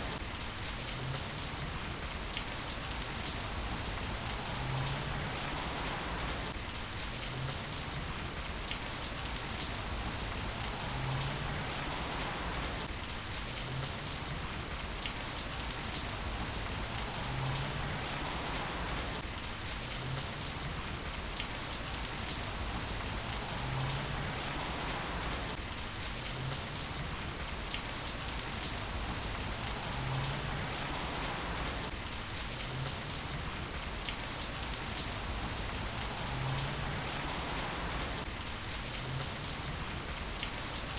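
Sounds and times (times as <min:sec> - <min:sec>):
heavy rain hissing: 0:00.0 - 0:40.9
rain drop ticks: 0:15.8 - 0:19.2, 0:27.7 - 0:31.8.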